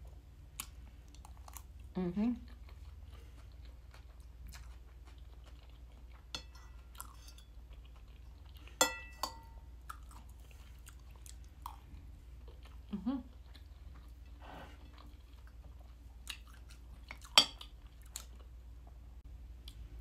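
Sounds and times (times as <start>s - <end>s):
close-up chewing: 0.5s - 8.8s, 9.8s - 19.0s
metal spoon clinking on plate: 6.3s - 7.5s, 8.8s - 9.6s.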